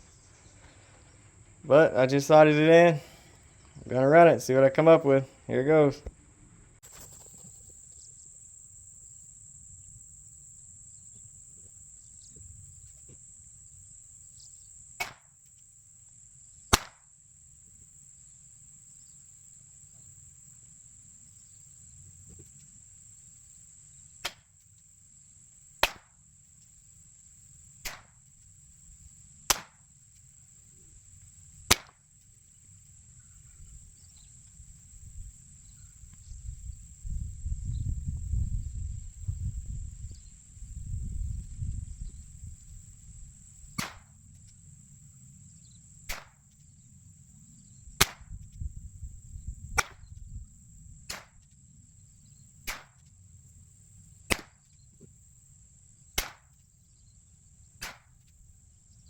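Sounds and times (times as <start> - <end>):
high insect trill: 0.0 - 5.9, 6.8 - 59.0
rifle shots: 16.7 - 17.0, 31.7 - 31.9.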